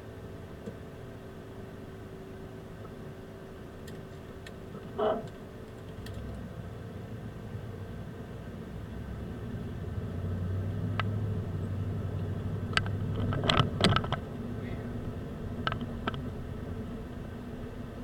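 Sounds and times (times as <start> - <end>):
car engine and road rumble: 0.0 - 18.0
low hum: 1.2 - 18.0
sharp clicks and knocks: 12.7 - 14.3, 15.6 - 16.3.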